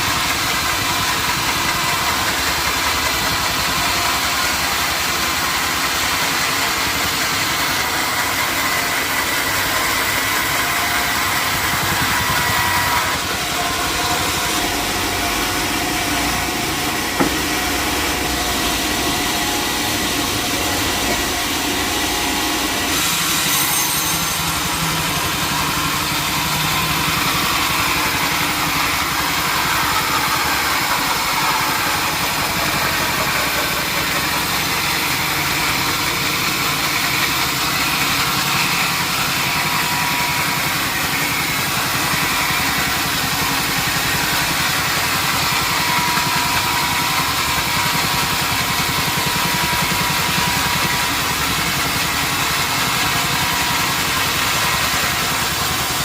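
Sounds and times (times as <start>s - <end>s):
sawmill machinery humming: 0.0s - 56.0s
sharp knock: 17.1s - 17.6s.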